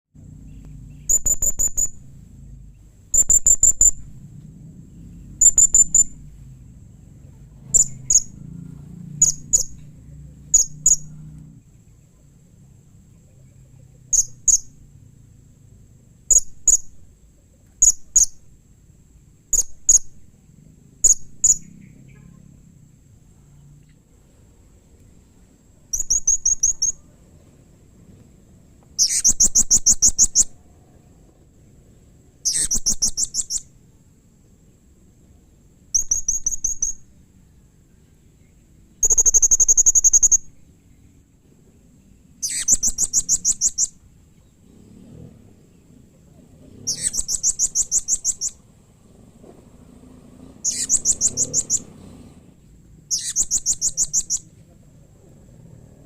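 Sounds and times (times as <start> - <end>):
parrot high trilled chirps: 1.0 - 2.0, 3.1 - 4.0, 5.4 - 6.2, 7.7 - 8.4, 9.2 - 9.8, 10.5 - 11.1, 17.8 - 18.4, 25.9 - 27.0, 29.0 - 30.5, 32.4 - 33.7, 35.9 - 37.1, 39.0 - 40.5, 42.4 - 44.0, 46.9 - 48.6, 50.6 - 51.9, 53.1 - 54.4
short sharp bird notes: 42.4 - 44.0, 53.1 - 54.5.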